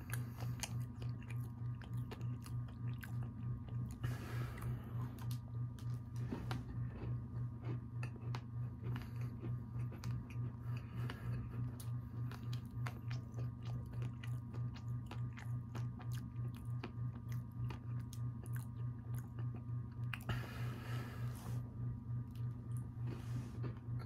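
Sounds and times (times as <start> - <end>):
chewing crunchy cookie: 0.0 - 21.3, 21.9 - 24.0.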